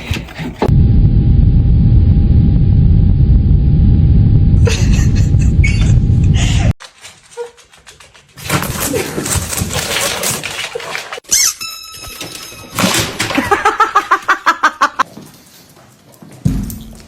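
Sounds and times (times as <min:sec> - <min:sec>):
dogs scuffling: 0:06.8 - 0:11.2
fast short squeaks: 0:11.3 - 0:12.1.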